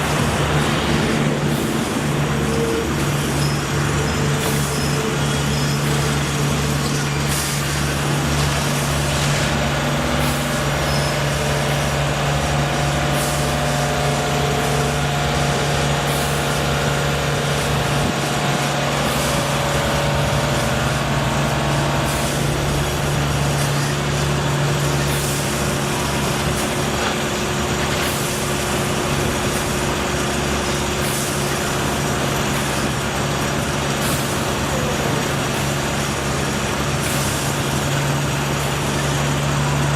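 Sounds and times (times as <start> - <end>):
large engine running: 0.0 - 39.9.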